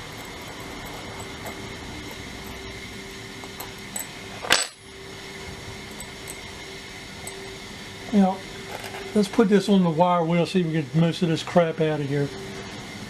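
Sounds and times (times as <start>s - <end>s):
metal tool clinking on hard surface: 0.0s - 2.6s, 3.4s - 4.8s
steady low hum: 0.0s - 13.0s.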